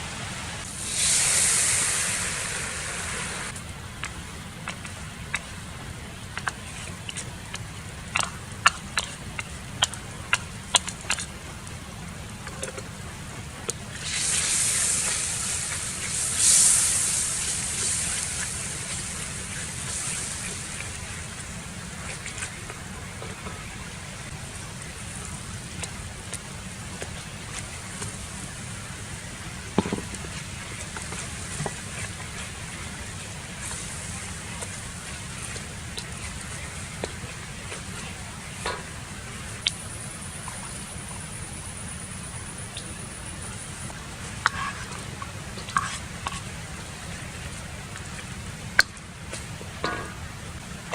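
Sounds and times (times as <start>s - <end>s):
food sizzling in hot oil: 0.6s - 3.6s, 13.9s - 21.6s.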